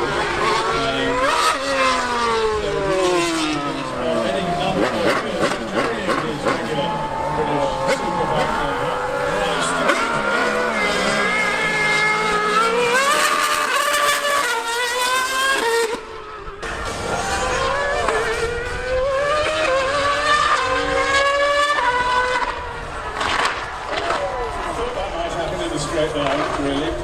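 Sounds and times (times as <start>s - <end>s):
racing engine revving: 0.0s - 27.0s.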